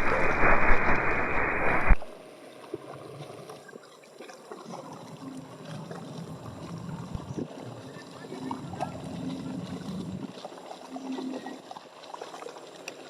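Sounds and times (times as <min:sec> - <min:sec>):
radio transmission hiss: 0:00.0 - 0:02.2.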